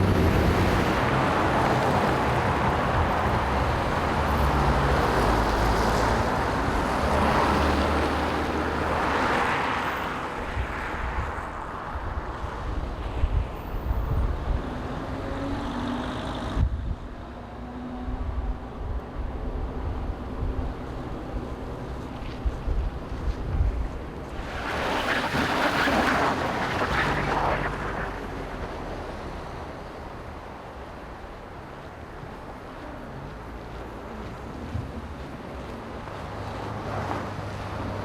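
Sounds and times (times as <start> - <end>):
motor vehicles passing: 0.0 - 38.0
wind on microphone: 10.4 - 15.7, 16.3 - 17.3, 18.0 - 28.6.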